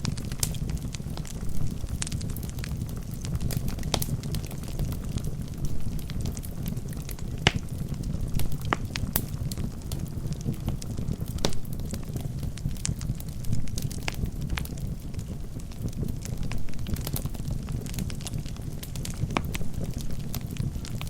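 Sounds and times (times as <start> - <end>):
fire crackling in a fireplace: 0.0 - 21.0.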